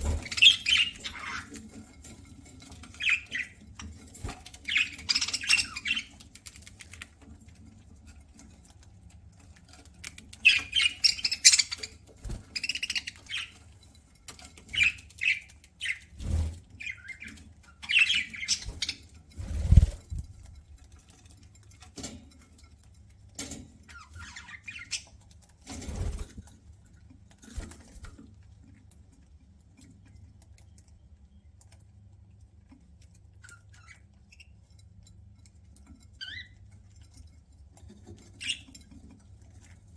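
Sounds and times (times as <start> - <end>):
budgerigars chirping: 0.0 - 1.6, 2.9 - 3.6, 4.6 - 6.2, 10.4 - 12.0, 14.7 - 16.1, 16.8 - 19.0, 23.9 - 25.1.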